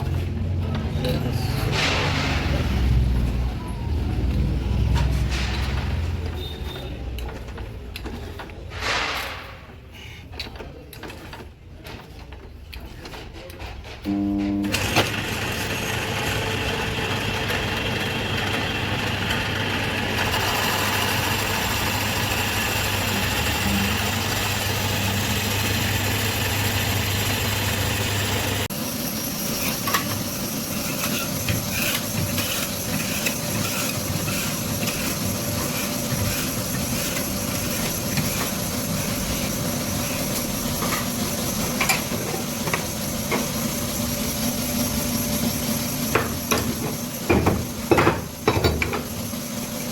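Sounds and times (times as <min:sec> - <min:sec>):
boring machine humming: 0:14.1 - 0:49.9.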